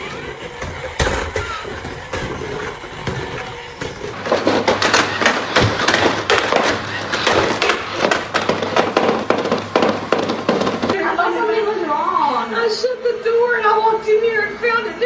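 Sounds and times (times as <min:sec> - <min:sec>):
robot vacuum knocking and rattling: 0:04.2 - 0:11.0.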